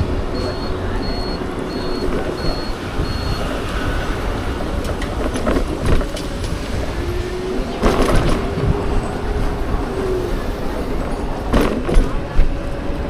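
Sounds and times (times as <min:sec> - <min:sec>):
passing road traffic: 0:00.0 - 0:13.0
wind buffeting microphone: 0:00.0 - 0:13.0.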